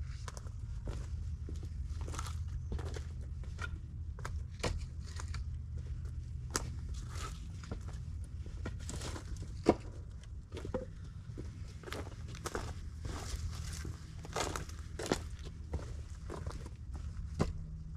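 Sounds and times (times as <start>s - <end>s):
footsteps on dead leaves: 11.9s - 17.2s.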